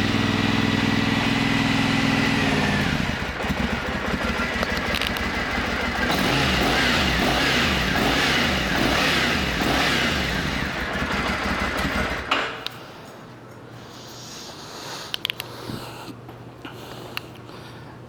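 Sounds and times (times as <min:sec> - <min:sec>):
motorcycle engine revving: 0:00.0 - 0:12.3.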